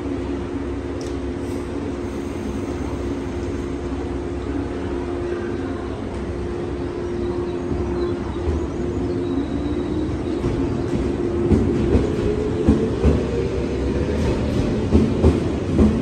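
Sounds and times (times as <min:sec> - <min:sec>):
electric train humming: 0:00.0 - 0:16.0.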